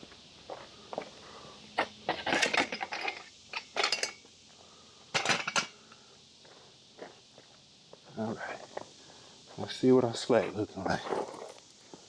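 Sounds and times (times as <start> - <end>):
metal clinking and clattering: 2.1 - 4.2, 5.2 - 5.7.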